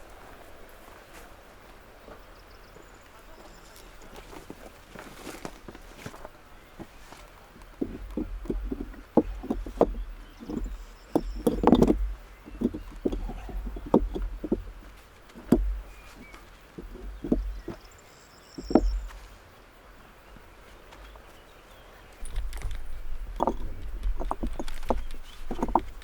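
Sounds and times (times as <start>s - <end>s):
stones knocking together: 4.4s - 17.9s, 18.6s - 19.2s, 22.2s - 26.0s.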